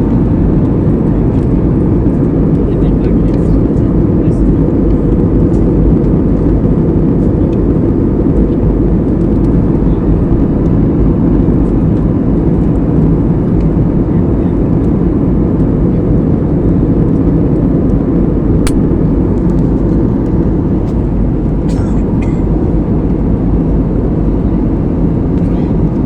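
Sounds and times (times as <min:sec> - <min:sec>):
airplane rumble: 0:00.0 - 0:26.0
sharp click: 0:18.7 - 0:18.9.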